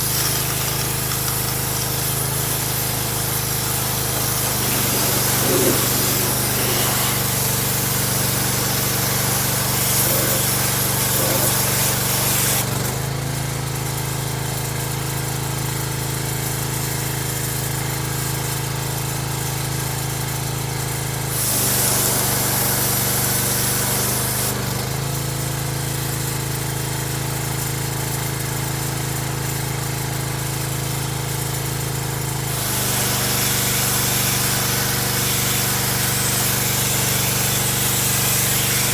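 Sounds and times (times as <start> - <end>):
loud hissing spray: 0.0 - 12.7, 32.6 - 38.9.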